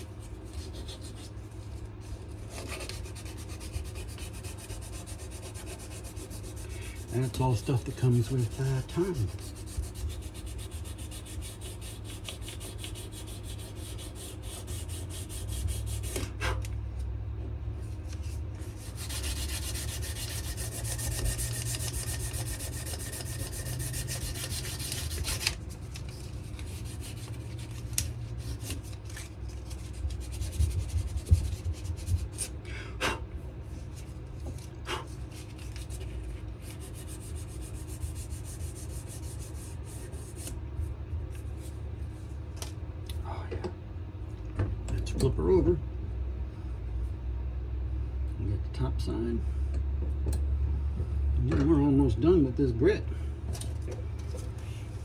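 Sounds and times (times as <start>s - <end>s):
sandpaper rubbing on wood: 2.5s - 16.6s, 18.2s - 32.5s, 34.9s - 40.5s.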